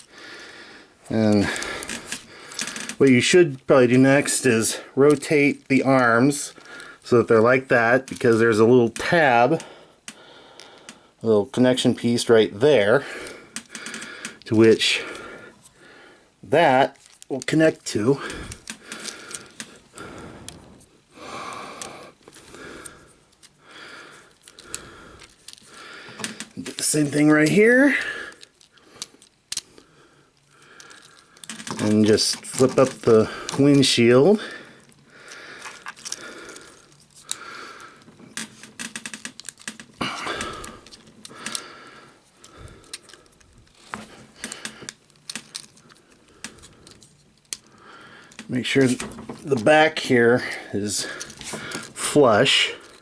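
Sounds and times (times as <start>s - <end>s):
plastic toy parts clicking: 1.3s - 3.3s, 7.4s - 10.2s, 13.5s - 14.8s, 16.9s - 19.9s, 24.2s - 34.2s, 34.8s - 37.4s, 38.0s - 41.7s, 42.4s - 49.9s, 51.0s - 53.0s
long breaths close to microphone: 18.2s - 26.6s, 40.1s - 43.5s, 47.6s - 48.5s.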